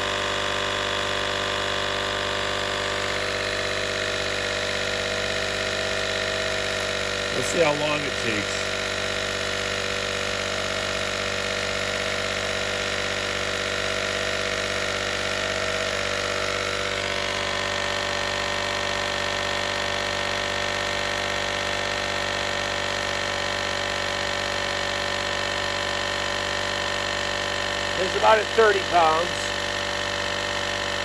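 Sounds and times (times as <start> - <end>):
small air compressor running: 0.0 - 31.0.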